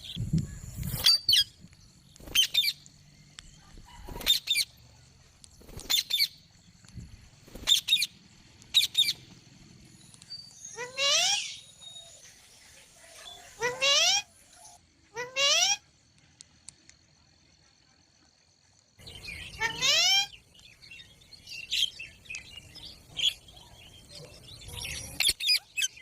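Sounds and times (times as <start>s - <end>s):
parakeet calling: 10.4s - 12.1s, 13.3s - 15.8s, 19.1s - 20.4s.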